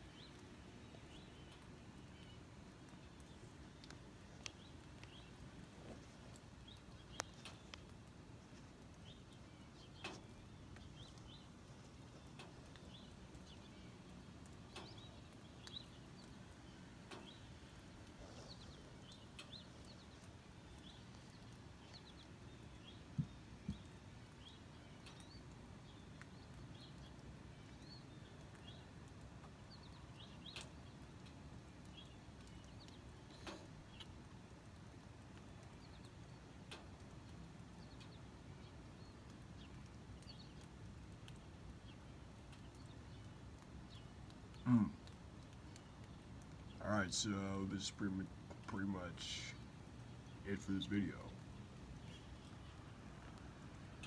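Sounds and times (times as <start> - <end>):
small birds chirping: 0.0 - 54.0
sharp clicks: 1.5 - 8.2.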